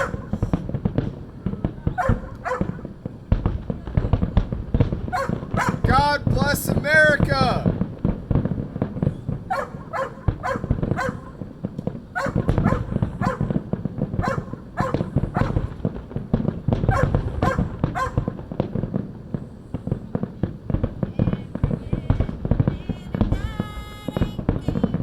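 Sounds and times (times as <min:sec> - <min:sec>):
dogs barking: 0:00.0 - 0:00.6, 0:01.8 - 0:03.0, 0:05.0 - 0:06.0, 0:09.4 - 0:11.5, 0:12.1 - 0:15.8, 0:16.8 - 0:18.4
fireworks rumbling: 0:00.0 - 0:25.0.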